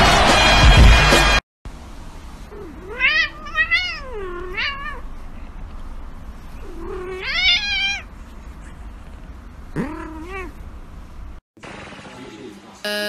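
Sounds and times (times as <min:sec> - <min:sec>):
cat meowing: 0:02.5 - 0:05.0, 0:06.6 - 0:08.1.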